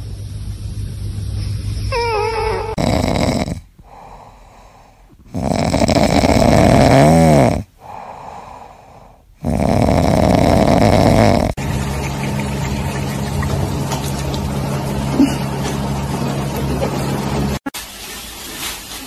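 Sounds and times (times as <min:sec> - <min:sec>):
steady hum: 0:00.0 - 0:17.6
pet snoring: 0:01.9 - 0:11.6.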